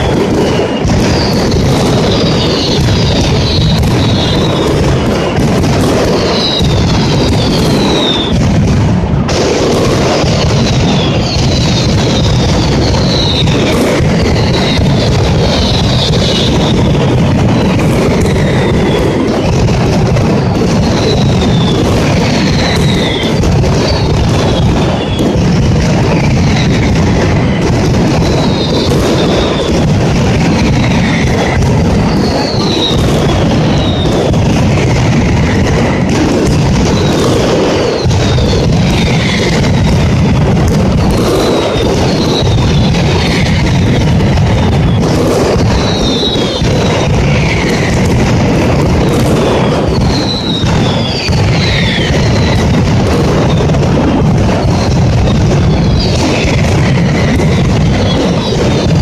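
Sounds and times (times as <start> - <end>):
falling whistles: 0.0 - 5.4, 6.2 - 8.4, 10.6 - 17.0, 20.9 - 25.3, 30.7 - 34.2, 41.1 - 44.0, 44.8 - 47.9, 49.3 - 52.7, 55.6 - 58.8
firecracker barrage: 0.0 - 59.0.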